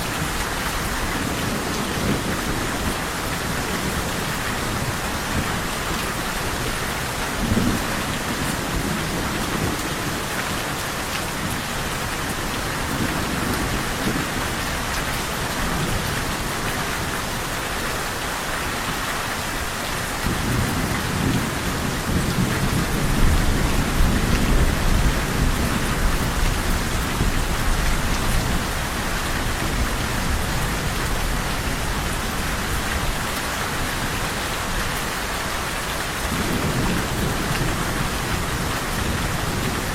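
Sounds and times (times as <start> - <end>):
heavy rain: 0.0 - 39.9
thunder rumbling: 20.2 - 34.4, 36.1 - 39.9.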